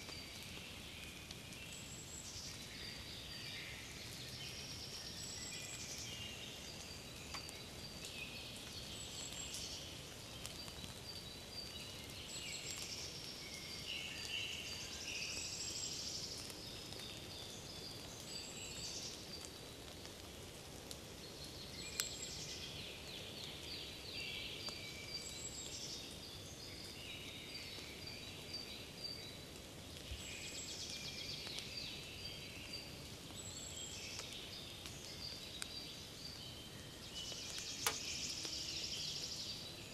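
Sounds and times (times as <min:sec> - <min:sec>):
songbirds chirping: 0:00.0 - 0:39.9
sharp click: 0:37.8 - 0:38.0.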